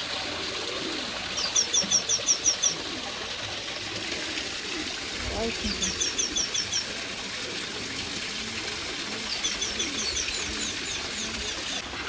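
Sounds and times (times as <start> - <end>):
dove cooing: 0.0 - 12.0
songbird chirping: 5.2 - 6.9.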